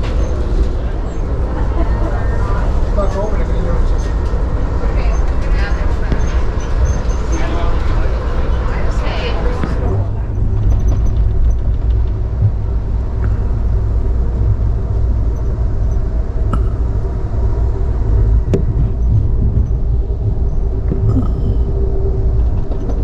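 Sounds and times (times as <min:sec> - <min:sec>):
car road and engine rumble: 0:00.0 - 0:23.0
faint drone: 0:12.5 - 0:23.0.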